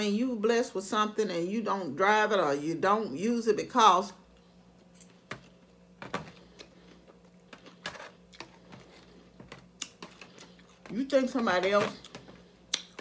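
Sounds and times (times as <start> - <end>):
person chewing salad: 6.4 - 10.8, 12.0 - 13.0.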